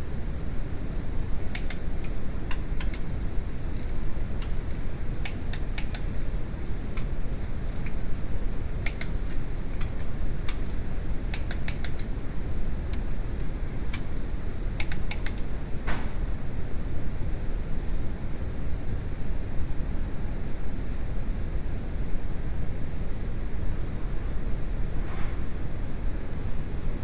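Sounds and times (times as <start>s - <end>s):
steady low rumble: 0.0s - 27.0s
sharp short clicks: 5.2s - 6.1s, 8.8s - 9.9s, 11.3s - 12.1s, 14.8s - 15.4s.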